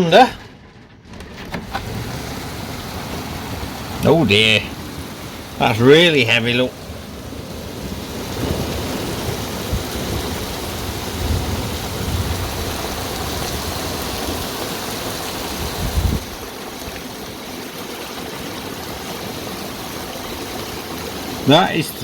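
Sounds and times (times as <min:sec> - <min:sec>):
thunder rumbling: 0:00.0 - 0:17.4
heavy rain pouring: 0:00.0 - 0:22.0.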